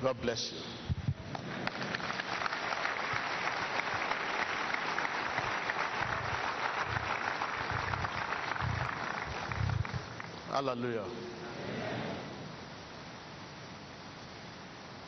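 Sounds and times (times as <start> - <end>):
crowd clapping: 1.2 - 11.0.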